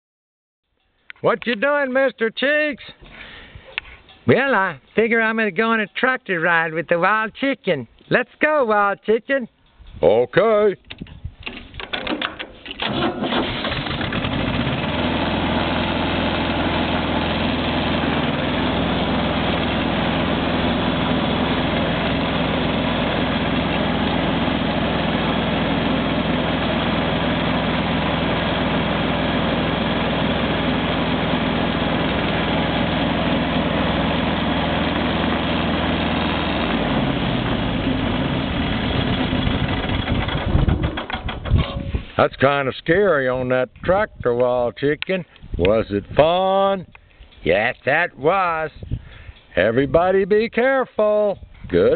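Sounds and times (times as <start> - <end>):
tractor engine running: 11.5 - 42.2.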